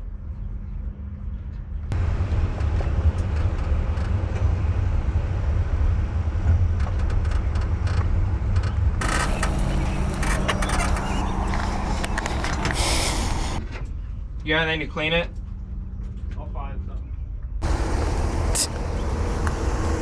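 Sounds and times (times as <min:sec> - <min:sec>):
car engine rumbling: 0:09.0 - 0:13.6, 0:17.6 - 0:20.0.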